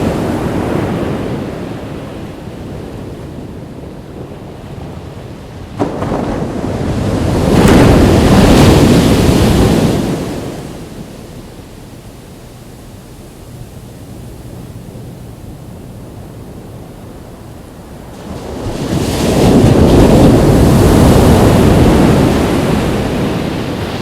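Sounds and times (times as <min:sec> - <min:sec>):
ocean waves breaking on beach: 0:00.0 - 0:24.0.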